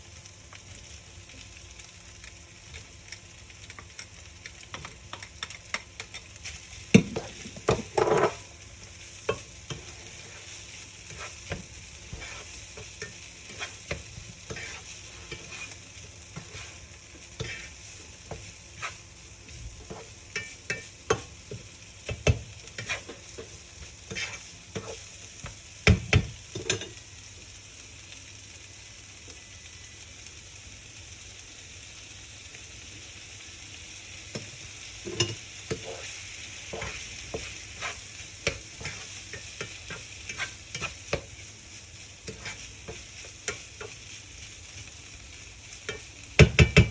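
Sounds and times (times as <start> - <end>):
food sizzling in a frying pan: 0.0 - 46.9
utensil knocking against pan: 46.4 - 46.9.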